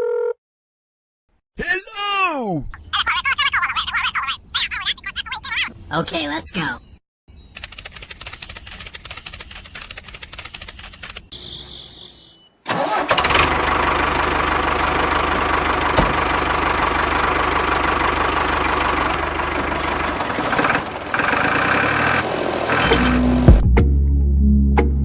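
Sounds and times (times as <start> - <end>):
small motor running: 7.6 - 11.3.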